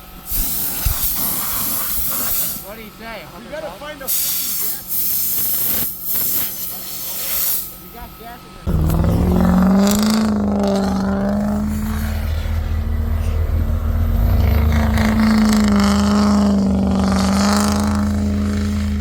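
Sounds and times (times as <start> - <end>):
truck engine running hard: 8.6 - 19.0.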